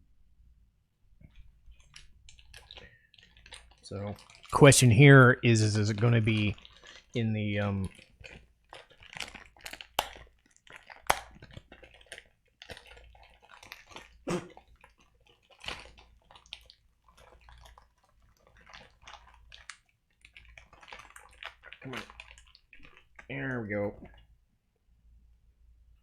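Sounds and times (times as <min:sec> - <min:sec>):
plastic packaging crinkling: 0:01.3 - 0:24.2
sharp clicks and snaps: 0:08.8 - 0:12.2.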